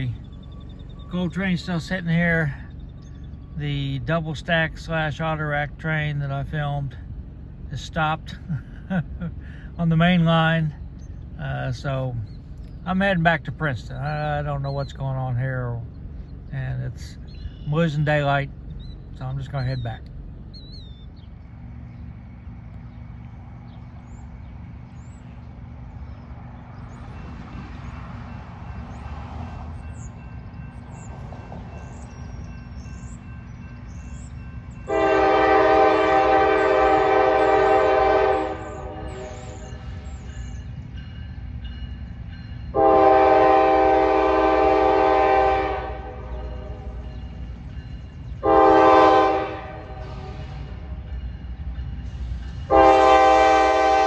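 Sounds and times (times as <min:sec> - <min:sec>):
locomotive air horn blasts: 0:34.9 - 0:39.8, 0:42.7 - 0:47.0, 0:48.4 - 0:50.9, 0:52.7 - 0:54.0.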